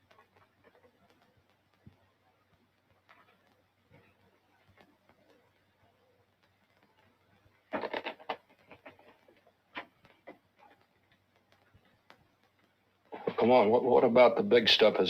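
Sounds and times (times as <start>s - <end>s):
paper rustling and clicking: 7.7s - 10.8s.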